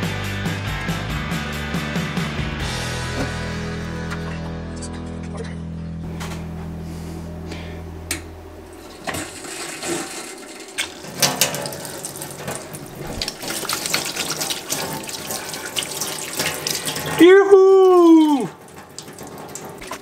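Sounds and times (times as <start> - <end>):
tap water splashing in metal sink: 9.0 - 20.0
hands rinsing under water: 9.4 - 20.0.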